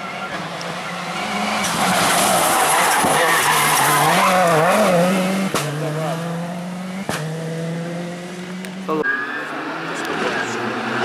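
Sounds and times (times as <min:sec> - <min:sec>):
car engine revving: 0:00.1 - 0:11.0.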